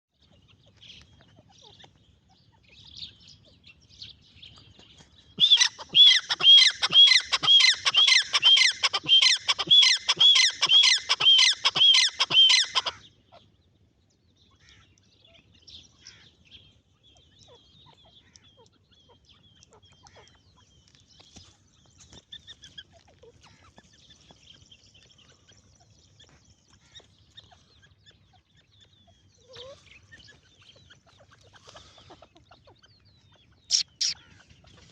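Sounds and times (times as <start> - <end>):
faint bird chirps: 0.1 - 13.5, 14.5 - 34.9
francolin calling: 5.4 - 13.0, 33.7 - 34.3.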